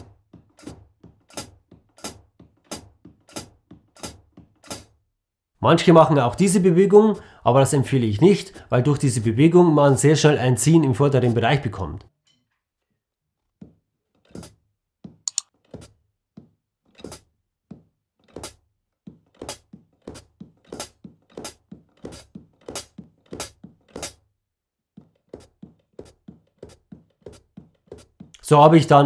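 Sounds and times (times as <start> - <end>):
heel taps: 0.0 - 4.8, 14.4 - 24.3, 24.9 - 28.4
hi-hat pedal clicks: 15.3 - 15.5.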